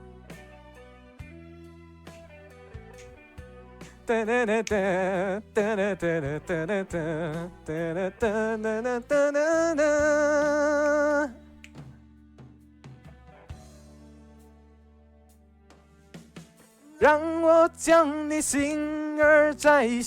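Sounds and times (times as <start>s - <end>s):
quiet guitar backing track: 0.0s - 20.0s
person singing wordless vibrato: 4.1s - 11.6s, 16.9s - 20.0s.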